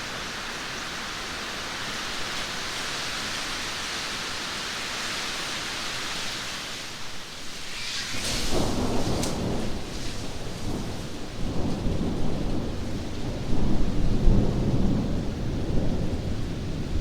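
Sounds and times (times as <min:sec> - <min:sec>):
heavy rain hissing: 0:00.0 - 0:17.0.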